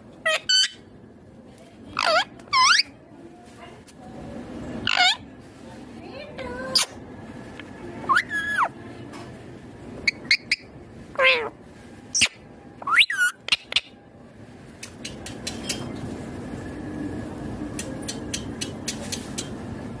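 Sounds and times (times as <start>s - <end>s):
low background noise: 0.0s - 20.0s
parakeet calling: 0.2s - 0.9s, 1.9s - 3.0s, 4.8s - 5.2s, 8.0s - 8.8s, 10.0s - 11.5s, 12.1s - 14.0s.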